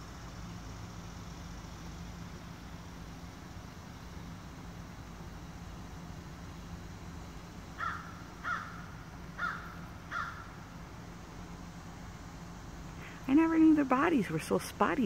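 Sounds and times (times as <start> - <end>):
bird calling: 7.8 - 10.7.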